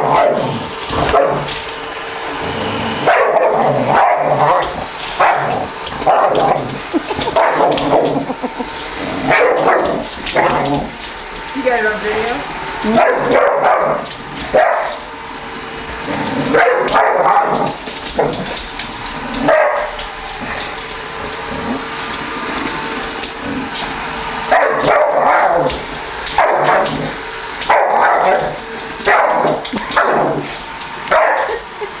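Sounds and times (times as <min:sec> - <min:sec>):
dog barking: 0:00.0 - 0:01.5, 0:03.0 - 0:06.6, 0:09.3 - 0:10.6, 0:12.8 - 0:15.0, 0:16.5 - 0:18.4, 0:19.4 - 0:20.0, 0:24.5 - 0:25.7, 0:26.3 - 0:27.0, 0:27.6 - 0:30.4, 0:31.1 - 0:31.6
robot vacuum humming: 0:00.0 - 0:32.0.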